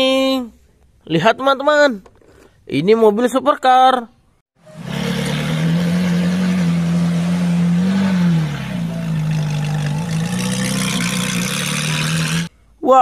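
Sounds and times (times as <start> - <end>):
car engine running: 4.6 - 12.5.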